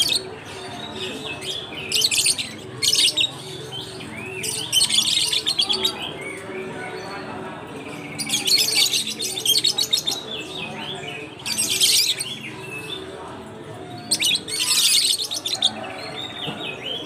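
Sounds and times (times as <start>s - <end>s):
lovebirds chirping shrilly: 14.0s - 15.6s.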